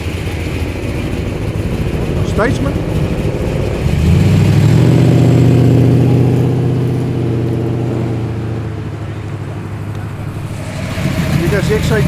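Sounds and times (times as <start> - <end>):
car engine driving past: 0.0 - 12.0.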